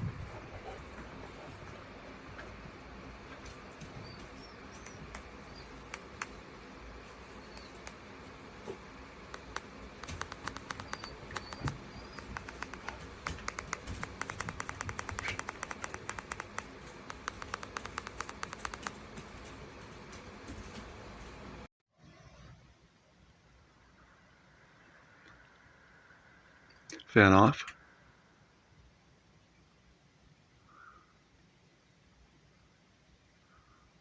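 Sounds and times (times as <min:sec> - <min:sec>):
ceiling fan whirring: 0:00.0 - 0:21.7
rapid light clicks: 0:07.6 - 0:08.0, 0:09.3 - 0:19.3.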